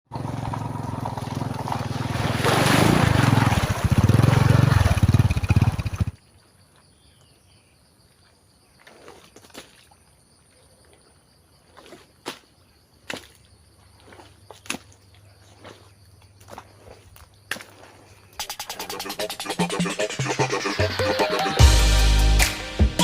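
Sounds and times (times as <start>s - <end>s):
motorbike engine running: 0.1s - 6.2s.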